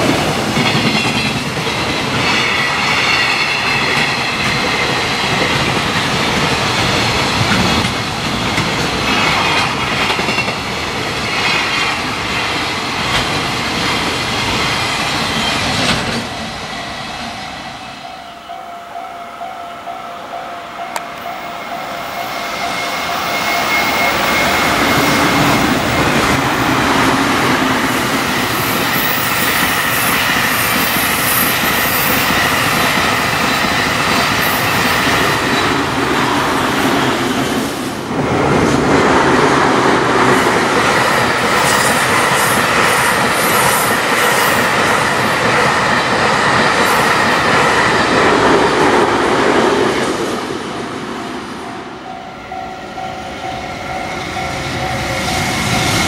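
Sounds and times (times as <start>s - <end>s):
train wheels on rails: 0.0s - 18.7s, 20.2s - 56.0s
level crossing alarm ringing: 18.0s - 26.9s.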